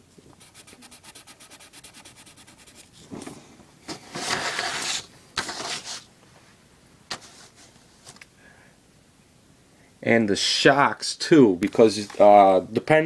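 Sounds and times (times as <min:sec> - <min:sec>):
rubbing and scraping on a surface: 0:00.3 - 0:03.1, 0:04.0 - 0:06.1.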